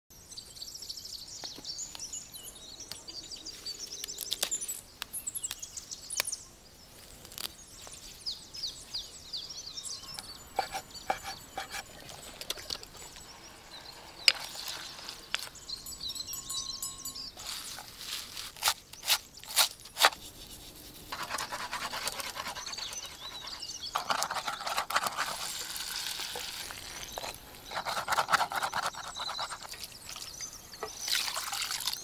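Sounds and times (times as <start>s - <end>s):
small birds chirping: 0.2s - 32.0s
rustles: 11.3s - 16.0s, 17.4s - 30.5s.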